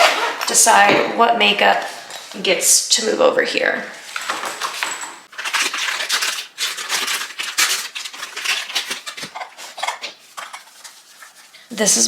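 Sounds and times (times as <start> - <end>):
makeup bag rustling: 4.0 - 11.6.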